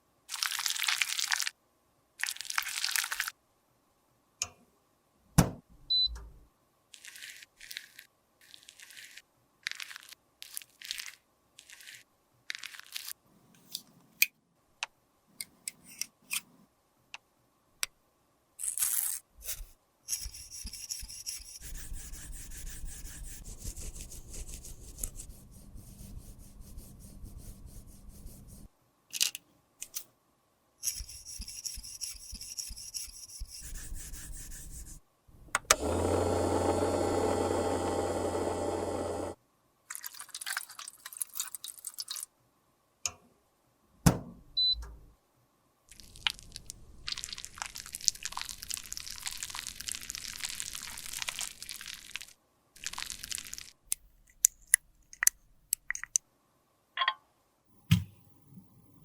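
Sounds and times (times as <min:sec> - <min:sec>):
scraping and rubbing: 0:18.6 - 0:28.7.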